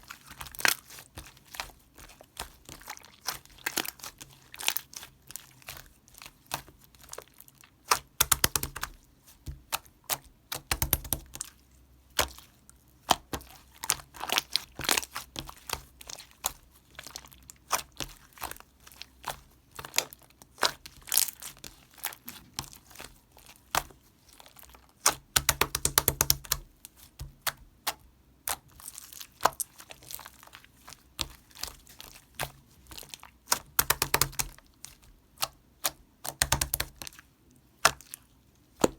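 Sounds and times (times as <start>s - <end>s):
slime clicking and crackling: 0.0s - 11.5s, 12.1s - 37.2s, 37.8s - 38.9s
heavy slime squishes: 0.0s - 38.9s.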